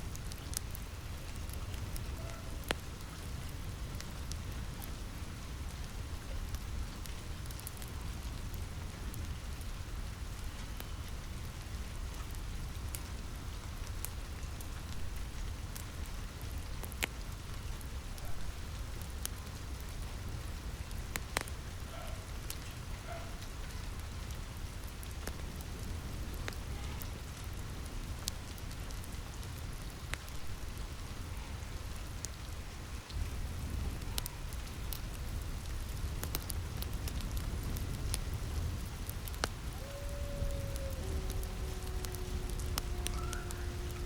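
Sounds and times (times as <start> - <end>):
wood fire crackling and popping: 0.0 - 9.6, 13.7 - 17.9, 20.8 - 22.8, 23.5 - 30.9, 32.0 - 44.0
rain on a roof: 0.0 - 44.0.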